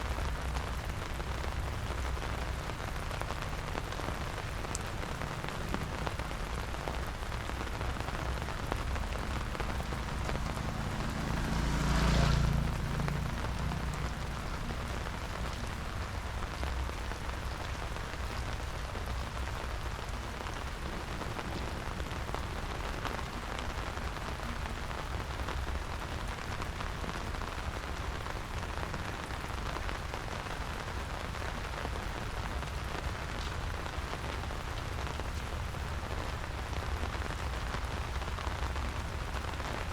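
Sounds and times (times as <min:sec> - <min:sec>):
rush with low rumble: 0:00.0 - 0:31.4
steady rain falling: 0:00.0 - 0:39.9.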